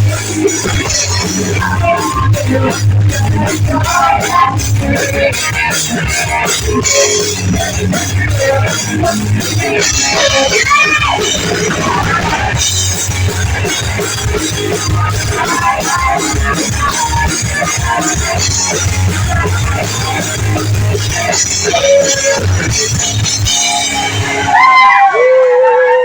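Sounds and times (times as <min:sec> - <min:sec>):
live rock band playing: 0:00.0 - 0:25.6.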